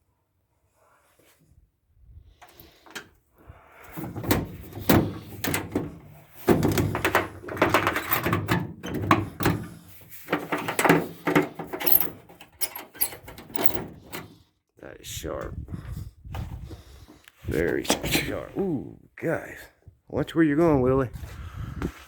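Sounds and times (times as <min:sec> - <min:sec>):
knocks thumps and clattering: 0:04.0 - 0:14.0.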